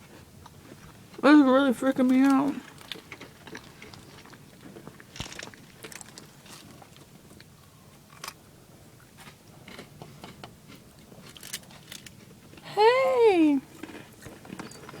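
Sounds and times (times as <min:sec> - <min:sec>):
chewing crunchy snacks: 0:02.0 - 0:12.7, 0:13.6 - 0:15.0.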